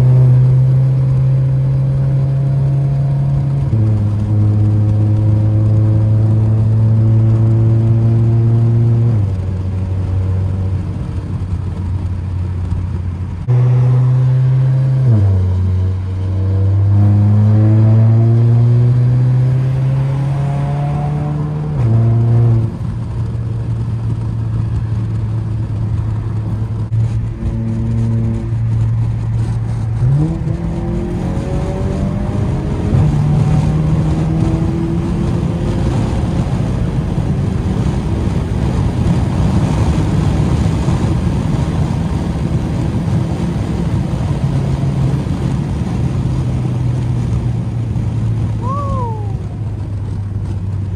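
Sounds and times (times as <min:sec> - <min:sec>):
car engine accelerating: 0:00.0 - 0:50.9
road and wind noise: 0:00.0 - 0:50.9.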